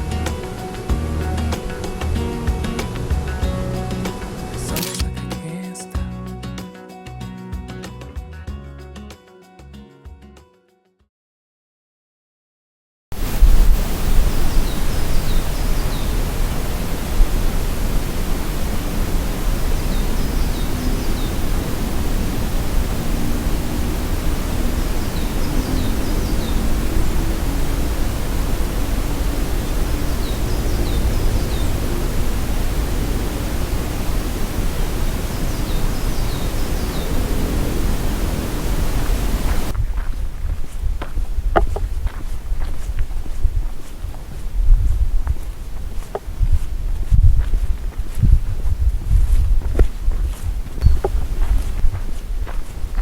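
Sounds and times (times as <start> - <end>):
falling water rushing: 0.0 - 4.9, 13.2 - 39.7
small bird chirping: 14.0 - 16.6, 19.2 - 39.8, 50.8 - 51.7.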